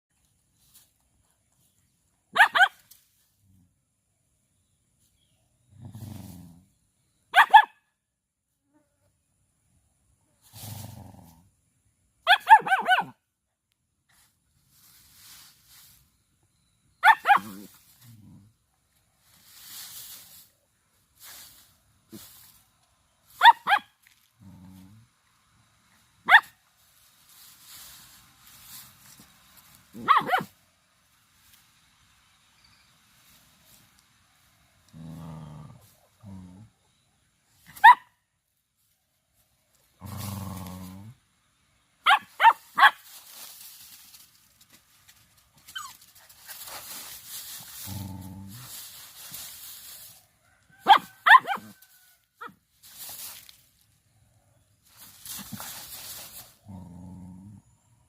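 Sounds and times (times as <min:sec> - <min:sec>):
dog barking high-pitched: 0:02.3 - 0:02.8, 0:07.3 - 0:07.8, 0:12.2 - 0:13.2, 0:17.0 - 0:17.7, 0:23.4 - 0:24.0, 0:26.2 - 0:26.6, 0:30.0 - 0:30.6, 0:37.7 - 0:38.1, 0:42.0 - 0:43.0, 0:50.8 - 0:51.8.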